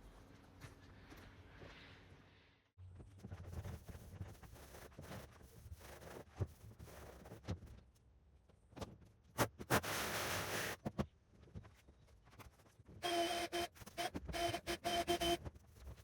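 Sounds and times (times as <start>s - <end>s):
power tool whirring: 13.0s - 15.4s.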